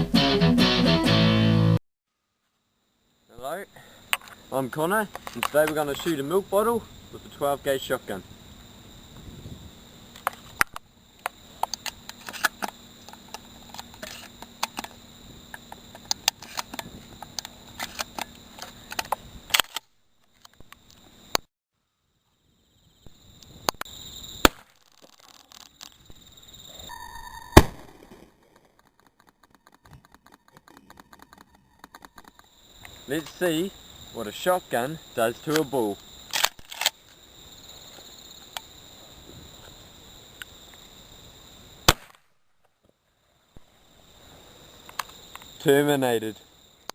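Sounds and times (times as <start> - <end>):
crickets chirping: 2.1 - 46.9
shotgun shot: 24.4 - 24.7, 27.6 - 28.3, 41.9 - 42.3
sharp clicks and knocks: 28.5 - 32.5.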